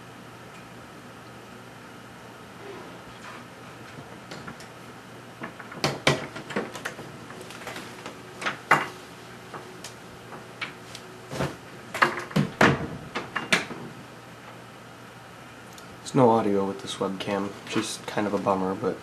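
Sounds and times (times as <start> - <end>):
faint steady hum: 0.0 - 19.0
sharp clicks and knocks: 5.4 - 8.9.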